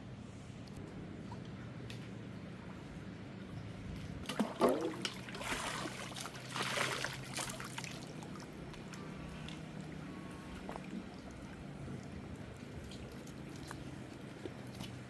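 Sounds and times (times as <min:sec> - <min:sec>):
low background hum: 0:00.0 - 0:15.0
water trickling and splashing: 0:04.2 - 0:15.0.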